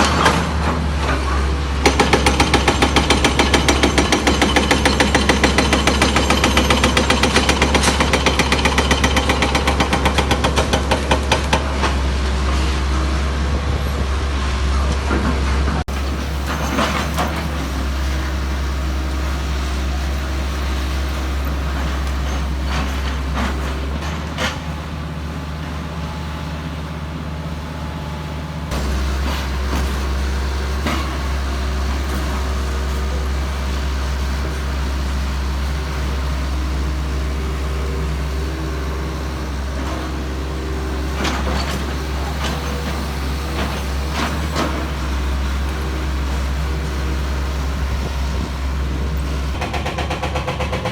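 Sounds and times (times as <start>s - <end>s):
heavy diesel engine droning: 0.0s - 50.9s
clanks and knocks: 15.8s - 26.6s.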